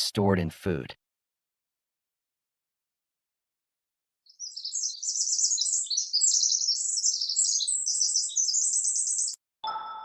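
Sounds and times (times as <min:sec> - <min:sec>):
birds chirping: 0:04.3 - 0:09.4.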